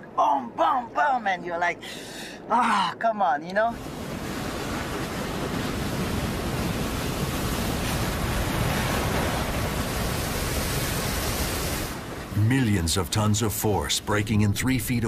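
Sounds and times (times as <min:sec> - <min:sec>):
ocean wave breaking: 0:03.6 - 0:15.0.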